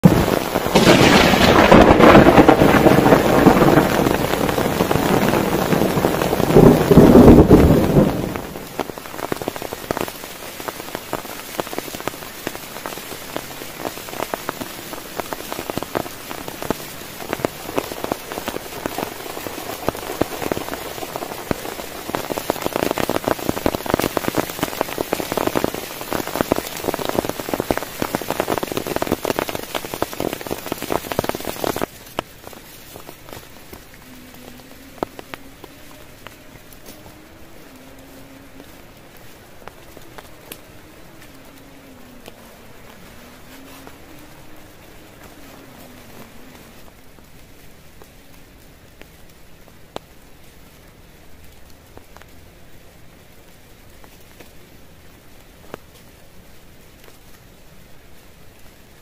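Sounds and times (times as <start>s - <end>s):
thunder rolling: 0.0s - 9.6s
heavy rain on a surface: 0.0s - 59.0s.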